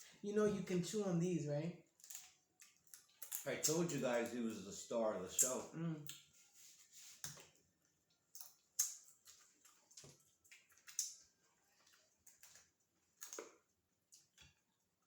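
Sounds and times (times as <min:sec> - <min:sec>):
person chewing: 0:07.0 - 0:14.8.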